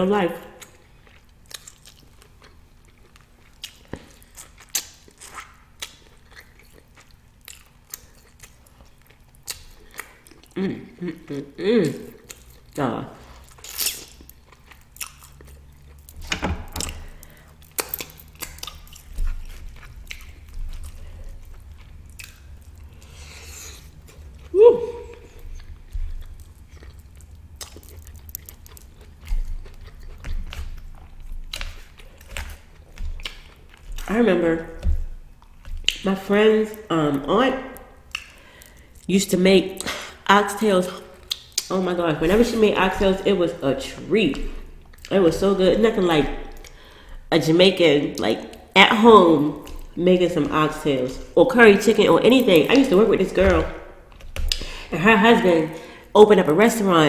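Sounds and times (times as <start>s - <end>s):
person chewing food: 0.6s - 45.2s, 45.8s - 47.3s, 48.1s - 56.2s.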